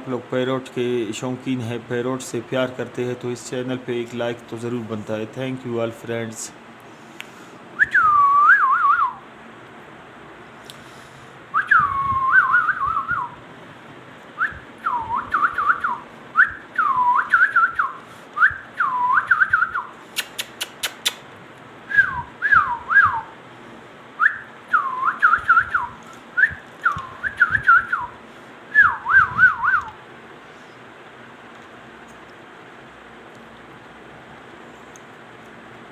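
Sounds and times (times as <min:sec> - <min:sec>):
parrot whistling: 0:14.4 - 0:21.2, 0:24.2 - 0:30.0
sharp clicks: 0:20.2 - 0:21.3.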